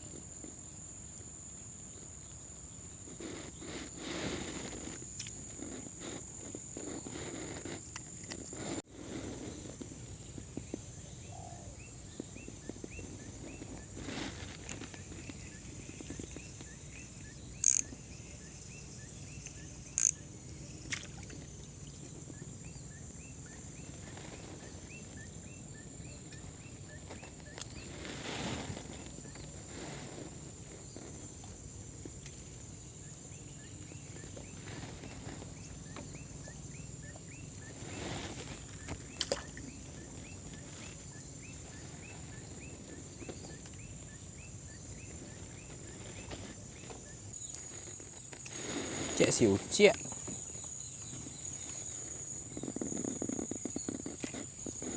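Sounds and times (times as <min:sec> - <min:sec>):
faint chirps: 0:00.0 - 0:54.9
high insect drone: 0:00.0 - 0:54.9
rustling noise: 0:01.6 - 0:11.0, 0:11.9 - 0:20.2, 0:21.4 - 0:54.9
sharp clicks: 0:19.4 - 0:20.2.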